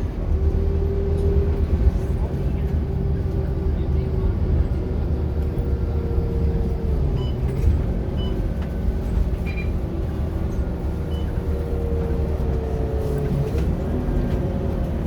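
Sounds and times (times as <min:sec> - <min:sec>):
bus diesel engine rumble: 0:00.0 - 0:15.0.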